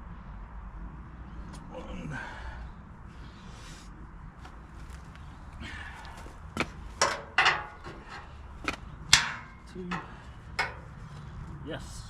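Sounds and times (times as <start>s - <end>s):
sharp metal knocks with ring: 9.1s - 11.0s.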